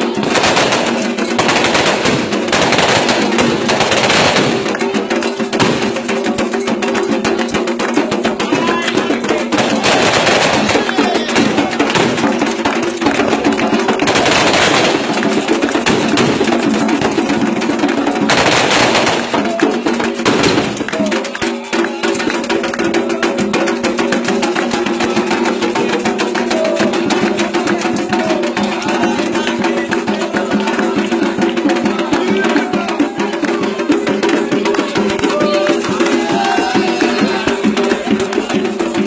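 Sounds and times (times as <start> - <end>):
drums and percussion: 0.0 - 39.0
people chanting: 0.0 - 39.0.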